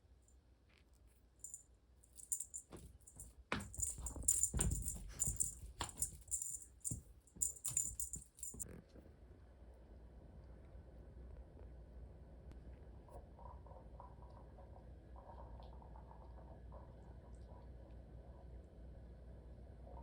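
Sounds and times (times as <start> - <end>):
metallic jingling and rattling: 1.4 - 8.6.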